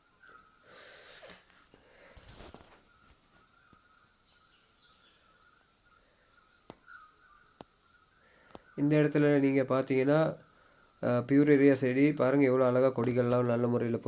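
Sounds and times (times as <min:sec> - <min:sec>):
insects chirring: 0:00.0 - 0:14.0
short scuffing noises: 0:02.2 - 0:03.5.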